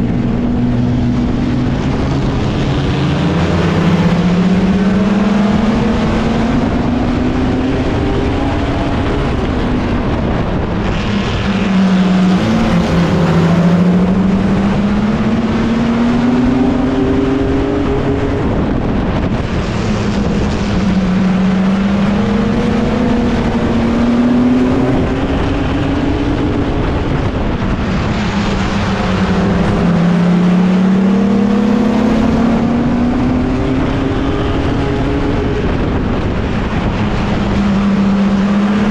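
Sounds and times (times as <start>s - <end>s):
other trucks' engines: 0.0s - 38.9s
race truck engine revving: 0.0s - 38.9s
wind rush: 0.0s - 38.9s.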